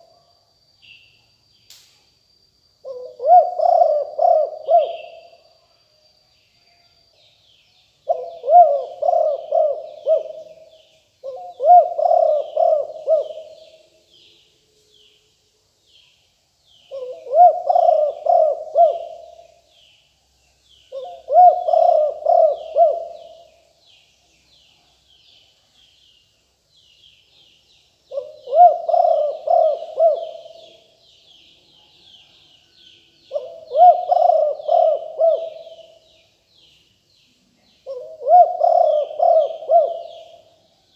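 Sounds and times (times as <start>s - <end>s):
dove cooing: 2.8s - 5.4s, 8.1s - 13.8s, 16.9s - 19.6s, 20.9s - 23.5s, 28.1s - 30.9s, 33.3s - 36.0s, 37.8s - 40.5s.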